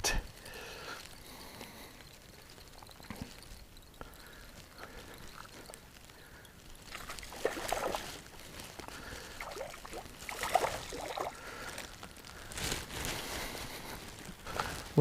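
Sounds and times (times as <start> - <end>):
water splashing and sloshing: 6.8 - 11.8.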